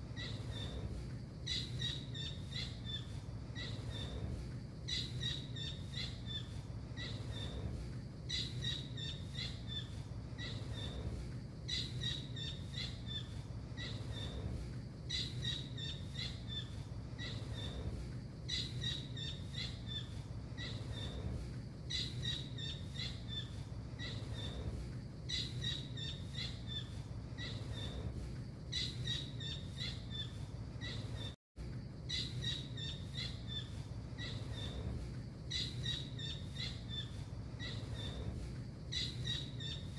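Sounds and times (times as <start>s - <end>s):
steady low hum: 0.0s - 39.9s
bird high-pitched piping calls: 1.4s - 4.2s, 4.9s - 7.6s, 8.3s - 11.0s, 11.7s - 14.4s, 15.1s - 17.8s, 18.5s - 21.2s, 21.9s - 24.6s, 25.3s - 28.0s, 28.7s - 31.4s, 32.1s - 34.8s, 35.5s - 38.2s, 38.9s - 39.9s.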